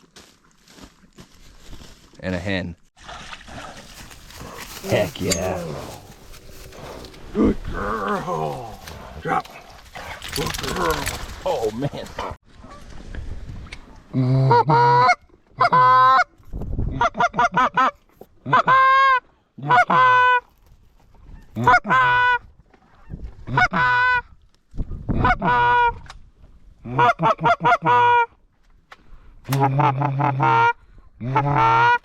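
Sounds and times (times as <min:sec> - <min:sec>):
goose call honks and clucks: 0:14.2 - 0:20.5, 0:21.3 - 0:24.3, 0:25.1 - 0:26.1, 0:26.8 - 0:28.4, 0:29.5 - 0:32.0.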